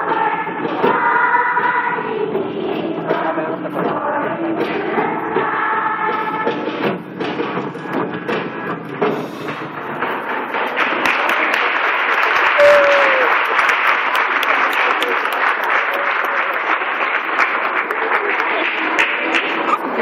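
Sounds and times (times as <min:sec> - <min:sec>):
audience applauding: 0:10.1 - 0:20.0
short falling tone: 0:12.6 - 0:13.3.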